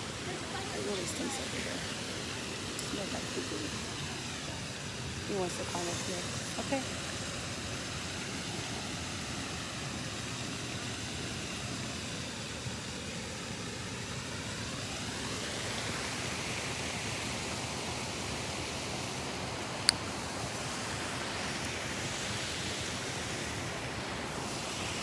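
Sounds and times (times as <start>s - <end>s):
water rushing over rocks: 0.0s - 25.0s.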